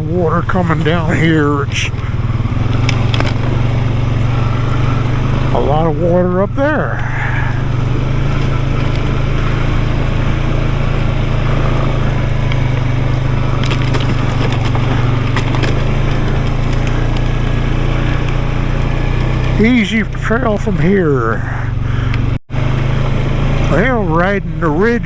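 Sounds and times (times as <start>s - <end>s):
tyres crunching over rocks: 0.0s - 23.9s
off-road vehicle engine running: 0.0s - 25.0s.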